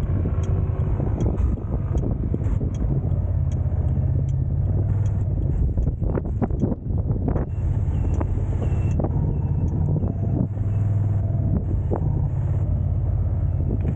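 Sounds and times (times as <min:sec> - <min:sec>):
car road rumble: 0:00.0 - 0:13.9
wind noise: 0:00.0 - 0:13.9
faint high tick: 0:00.3 - 0:06.8.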